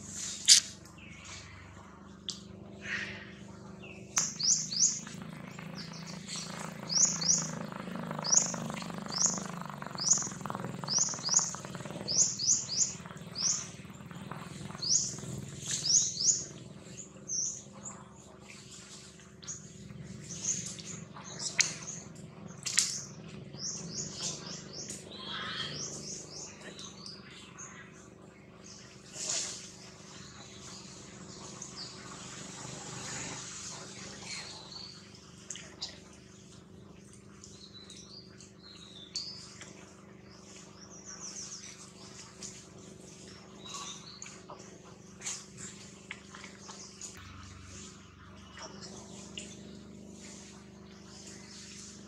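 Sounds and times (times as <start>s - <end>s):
bird chirping: 3.8s - 16.6s.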